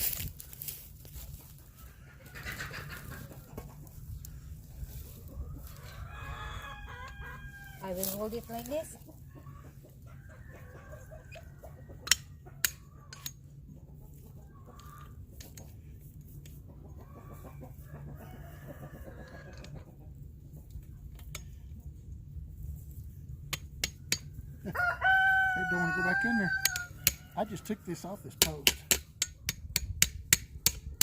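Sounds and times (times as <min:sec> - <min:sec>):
chicken clucking: 0:01.2 - 0:07.5, 0:08.7 - 0:21.1
rooster crowing: 0:05.6 - 0:07.9, 0:24.6 - 0:27.8.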